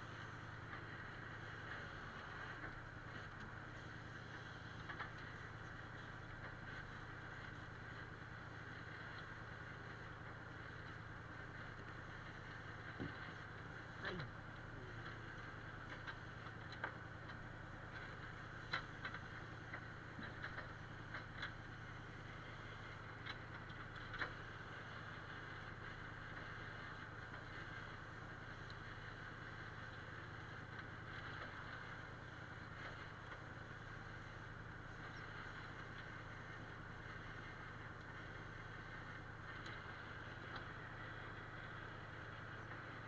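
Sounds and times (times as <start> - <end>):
low engine hum: 0.0 - 43.0.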